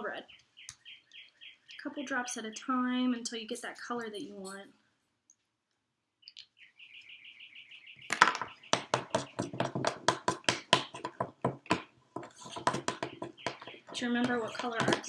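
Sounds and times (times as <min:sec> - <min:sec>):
bird chirping trill: 0:00.0 - 0:04.6, 0:06.2 - 0:09.7, 0:12.5 - 0:14.9
spoon stirring dough in bowl: 0:03.2 - 0:04.6, 0:08.5 - 0:15.0.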